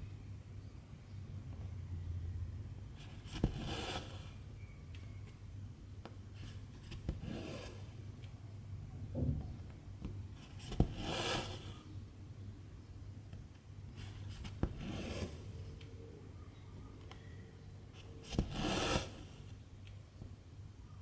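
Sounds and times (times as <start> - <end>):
thread drawn with rasping hiss: 10.6 - 11.9, 18.2 - 19.4.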